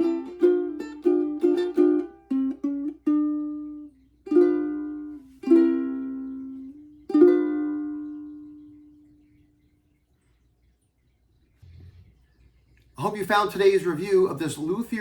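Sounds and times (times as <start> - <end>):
ukulele chords strummed: 0.0 - 9.0
ukulele notes plucked: 0.0 - 9.0.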